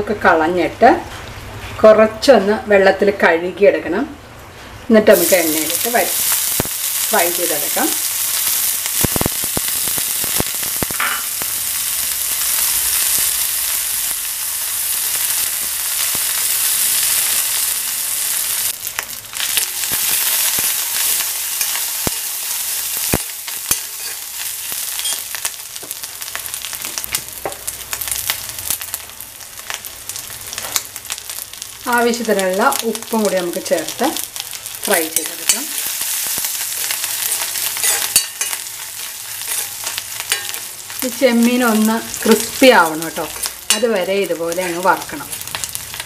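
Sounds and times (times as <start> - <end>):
prawns sizzling in hot oil: 5.0 - 46.0
steel spoon clicking and scraping: 23.1 - 24.2, 36.8 - 40.7.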